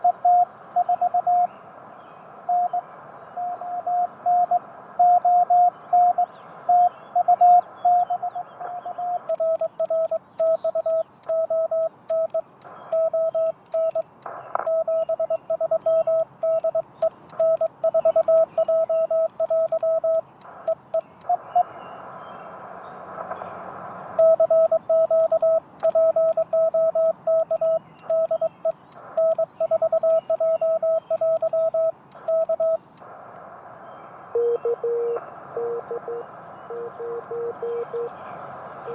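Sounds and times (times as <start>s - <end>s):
radio band hiss: 9.2s - 38.9s
faint sharp clicks: 9.3s - 21.4s, 24.2s - 33.5s
morse code tone: 9.3s - 21.4s, 24.2s - 33.0s.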